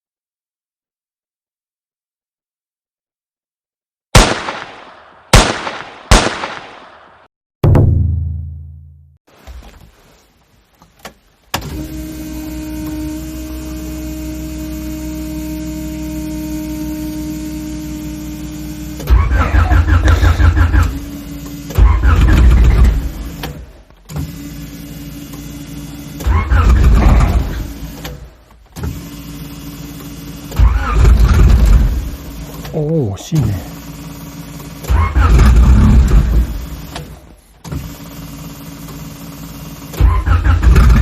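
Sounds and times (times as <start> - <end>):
car starter cranking: 11.0 - 41.0
steady electric whine: 11.6 - 39.6.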